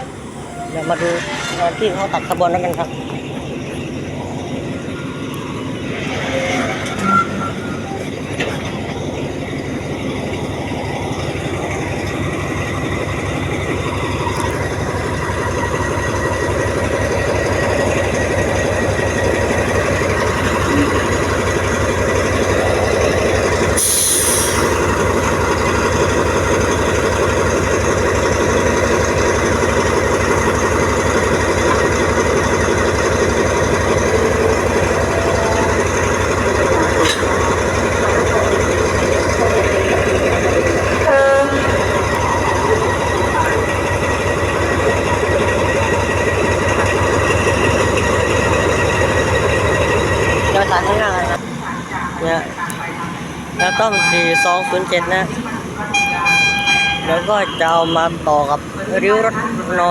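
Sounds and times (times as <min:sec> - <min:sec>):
diesel locomotive engine throbbing: 0:00.0 - 0:59.9
hiss of released air: 0:23.8 - 0:24.8.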